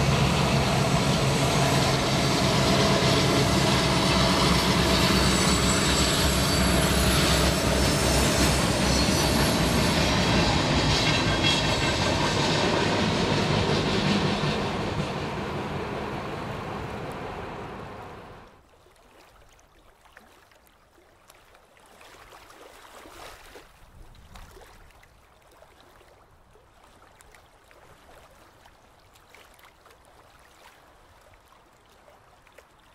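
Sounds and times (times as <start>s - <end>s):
passing train: 0.0s - 18.6s
water splashing and ticking: 18.4s - 32.9s.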